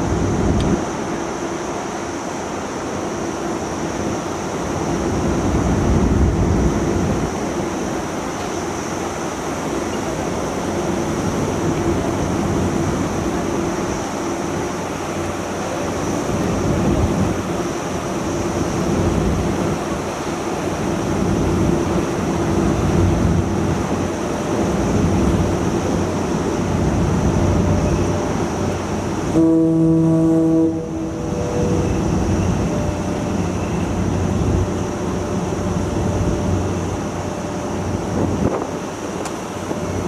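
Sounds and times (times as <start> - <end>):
ferry engine rumble: 0.0 - 40.0
ship's horn blast: 9.7 - 35.8.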